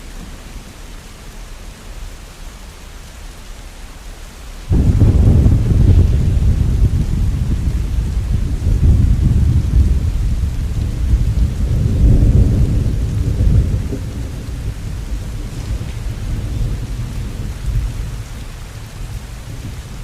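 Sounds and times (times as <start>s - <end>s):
steady rain: 0.0s - 20.0s
thunder rumbling: 4.7s - 20.0s.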